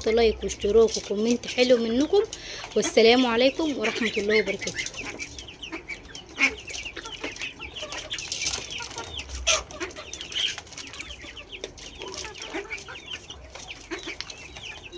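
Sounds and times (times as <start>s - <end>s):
adult hens clucking: 0.0s - 14.9s
chicks peeping: 0.0s - 14.9s.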